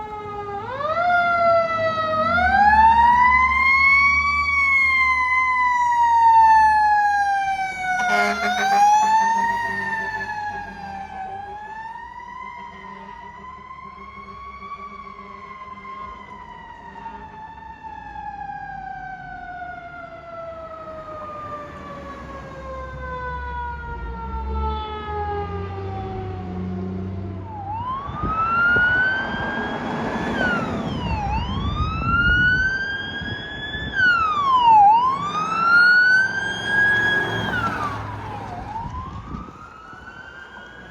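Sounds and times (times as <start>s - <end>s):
mechanical siren wailing: 0.0s - 40.9s.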